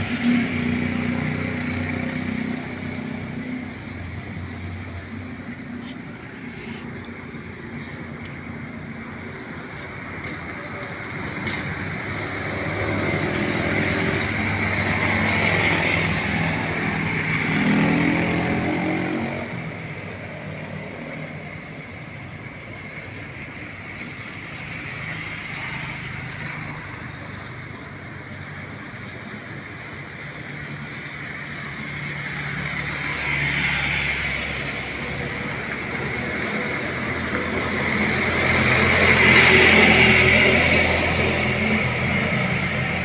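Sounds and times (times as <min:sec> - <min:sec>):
road noise: 0:00.0 - 0:43.0
vehicle engine passing: 0:32.2 - 0:43.0.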